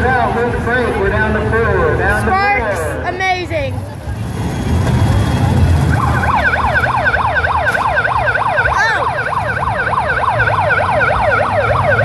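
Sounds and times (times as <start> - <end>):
siren yelping: 5.8 - 12.0.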